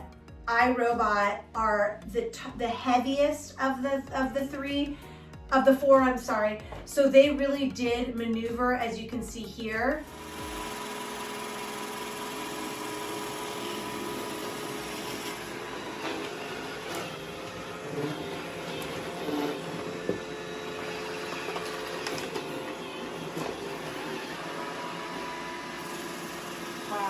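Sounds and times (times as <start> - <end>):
robot vacuum cleaner running: 10.0 - 27.0.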